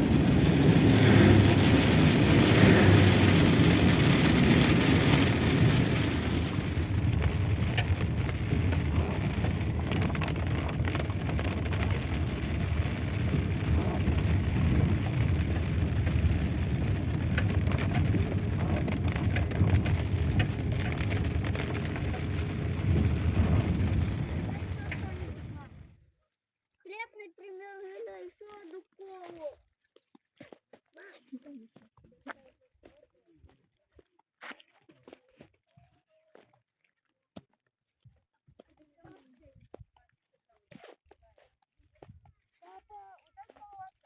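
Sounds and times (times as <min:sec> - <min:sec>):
car engine and road noise: 0:00.0 - 0:25.9.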